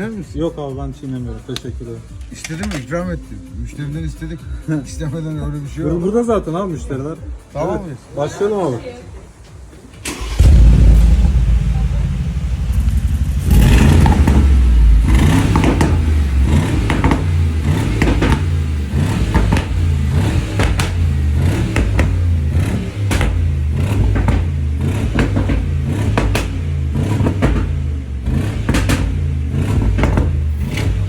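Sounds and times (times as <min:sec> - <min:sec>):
car engine revving and idling: 0:10.0 - 0:31.0
exhaust pops and crackles: 0:10.0 - 0:31.0.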